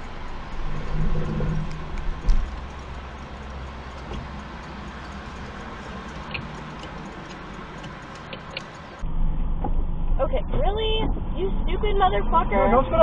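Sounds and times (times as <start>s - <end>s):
faint regular ticking: 0.0s - 9.0s
car road and engine rumble: 0.0s - 13.0s.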